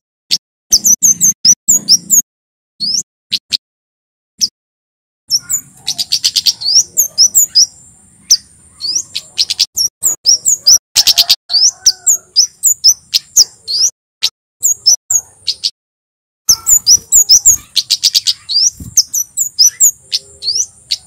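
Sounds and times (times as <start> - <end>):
bird chip notes: 16.5 - 21.0.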